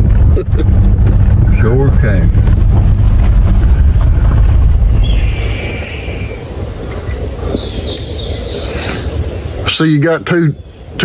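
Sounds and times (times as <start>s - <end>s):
high insect drone: 0.0s - 11.0s
vehicle engine rumbling: 0.0s - 11.0s
bird call: 5.0s - 9.3s.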